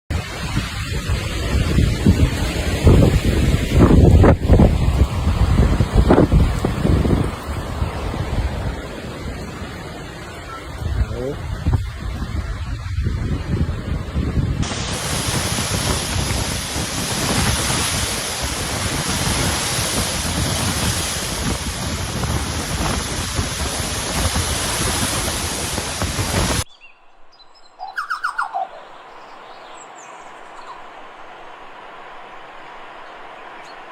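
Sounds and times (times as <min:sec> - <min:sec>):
storm rain and wind: 0:00.1 - 0:26.9
bird chirps: 0:26.7 - 0:31.0.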